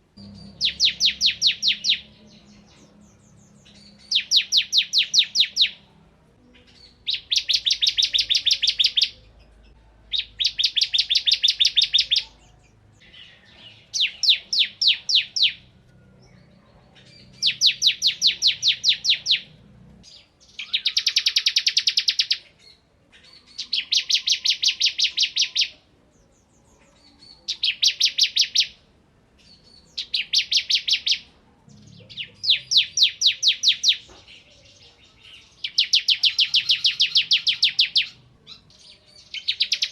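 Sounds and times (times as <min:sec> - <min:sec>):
bird rapid rattling song: 0:00.2 - 0:05.8, 0:06.6 - 0:09.2, 0:17.0 - 0:22.4, 0:35.6 - 0:38.2.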